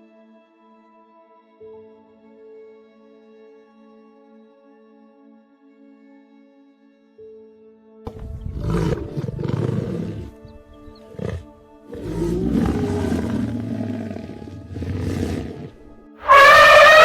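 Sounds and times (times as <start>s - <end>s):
soft background music: 0.0s - 17.0s
lion roaring: 8.1s - 17.0s.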